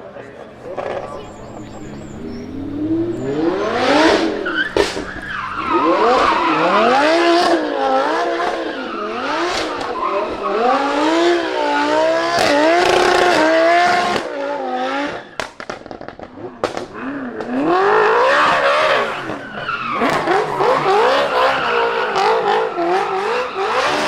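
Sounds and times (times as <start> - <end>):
car engine revving: 0.5 - 24.0
tyres squealing: 0.6 - 10.8, 18.1 - 24.0.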